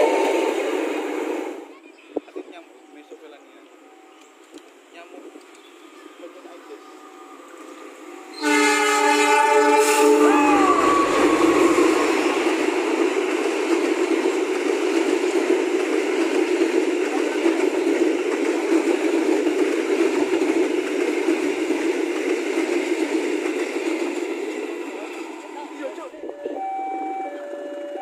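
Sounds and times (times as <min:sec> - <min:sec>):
locomotive horn: 0:00.0 - 0:00.6, 0:08.2 - 0:12.2
train wheels rumbling on rail: 0:00.0 - 0:01.8, 0:04.1 - 0:28.0.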